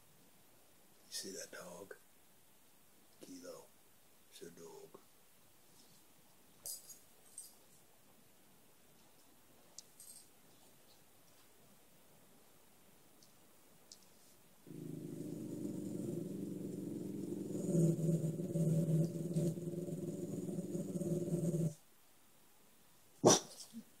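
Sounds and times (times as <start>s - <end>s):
dog growling: 14.7s - 21.8s.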